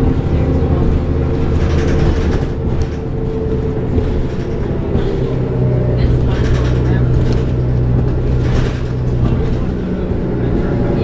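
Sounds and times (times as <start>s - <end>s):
bus diesel engine running: 0.0s - 11.0s
light interior rattles: 0.0s - 11.0s
road noise: 0.0s - 11.0s.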